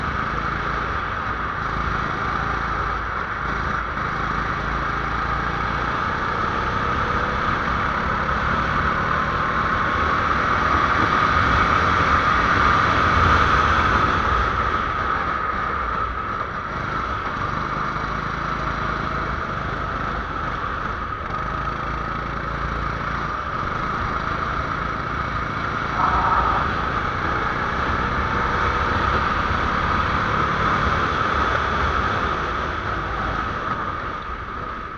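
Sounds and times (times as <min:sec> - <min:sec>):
rushing noise: 0:25.6 - 0:28.2.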